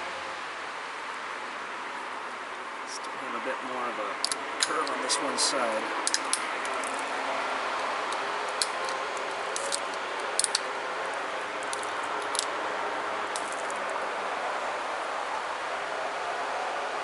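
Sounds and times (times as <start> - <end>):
steady hiss: 0.0 - 17.0
flint knapping clicks: 6.0 - 7.1, 7.8 - 10.7, 11.6 - 12.5.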